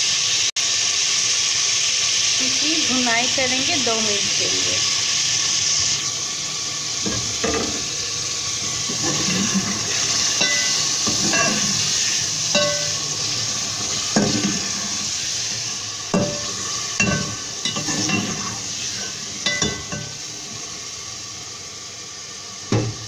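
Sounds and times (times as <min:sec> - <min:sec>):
food sizzling in oil: 0:00.0 - 0:23.0
metal spatula scraping pot: 0:08.8 - 0:13.1, 0:14.0 - 0:14.8, 0:16.2 - 0:20.2.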